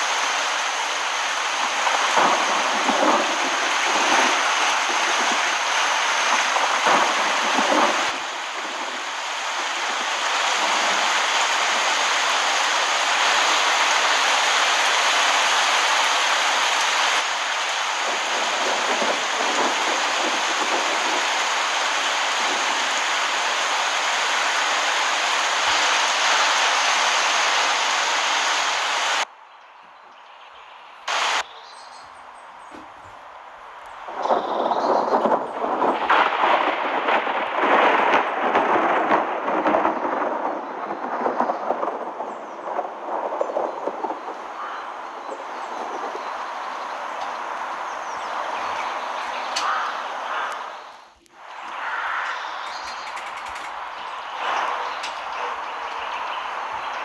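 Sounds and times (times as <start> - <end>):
heavy rain falling: 0.0 - 29.3, 31.0 - 57.0.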